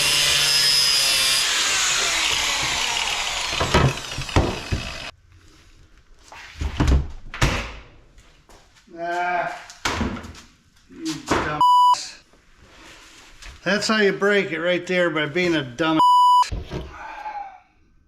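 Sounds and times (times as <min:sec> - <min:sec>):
power tool grinding metal: 0:00.0 - 0:05.1.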